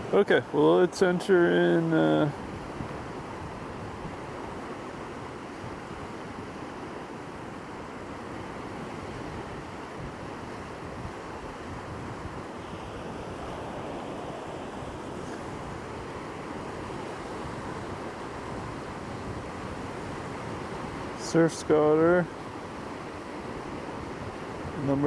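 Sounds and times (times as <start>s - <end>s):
surf washing on shore: 0.0s - 25.0s
wind on microphone: 9.0s - 21.1s.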